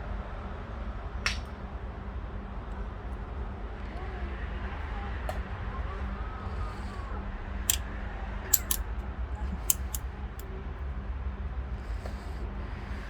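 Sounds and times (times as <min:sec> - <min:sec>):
steady low hum: 0:05.8 - 0:10.6
metal parts clicking and knocking: 0:08.5 - 0:08.8, 0:09.6 - 0:10.0.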